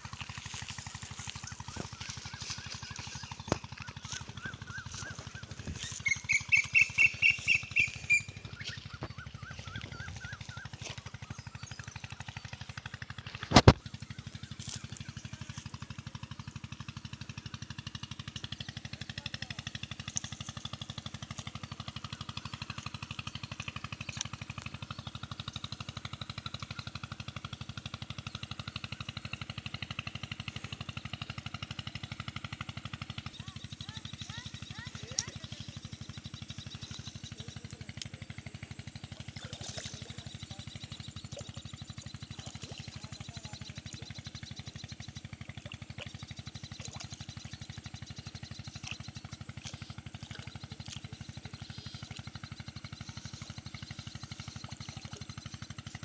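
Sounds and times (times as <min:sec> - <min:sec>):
steady low hum: 0:00.0 - 0:27.4, 0:28.0 - 0:56.0
bird calling sharp notes: 0:00.3 - 0:12.3.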